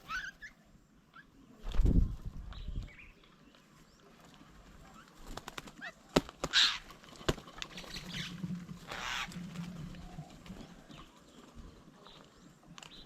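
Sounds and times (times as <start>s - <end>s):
bird wingbeats: 1.6s - 2.9s, 4.1s - 13.0s.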